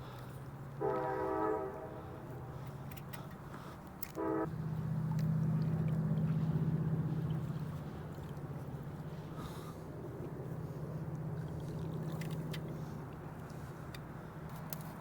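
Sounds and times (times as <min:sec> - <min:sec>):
distant train horn: 0:00.7 - 0:02.6, 0:04.0 - 0:05.0
low drone: 0:04.0 - 0:13.8.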